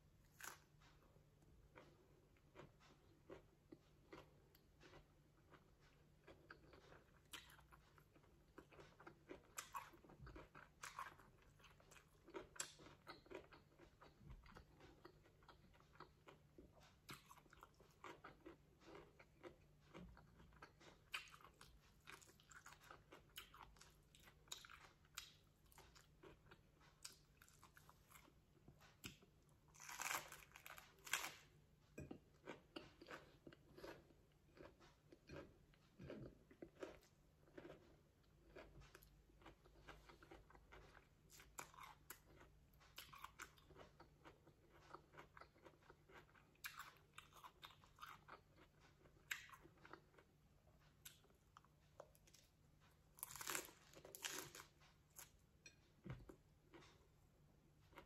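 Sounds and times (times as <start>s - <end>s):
crisp crunching while chewing: 29.6s - 31.5s, 53.2s - 55.3s.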